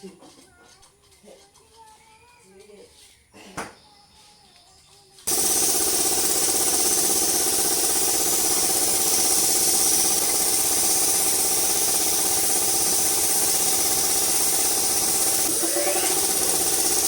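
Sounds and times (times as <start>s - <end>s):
engine running at idle: 5.3s - 17.0s.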